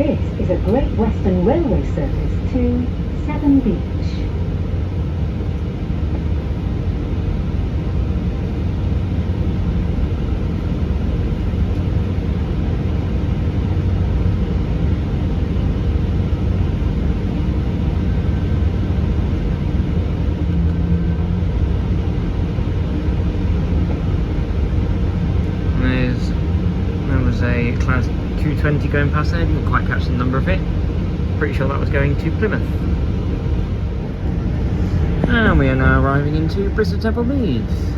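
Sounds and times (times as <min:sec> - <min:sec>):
diesel train engine rumble: 0:00.0 - 0:37.9
train wheels on rails: 0:31.5 - 0:37.8.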